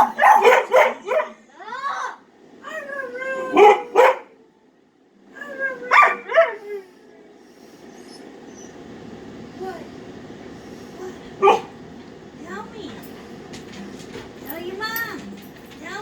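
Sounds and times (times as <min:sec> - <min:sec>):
dog barking: 0:00.0 - 0:01.4, 0:03.5 - 0:04.4, 0:05.9 - 0:06.7, 0:11.4 - 0:11.8
dog howl-like calls: 0:02.6 - 0:04.0, 0:05.3 - 0:07.0.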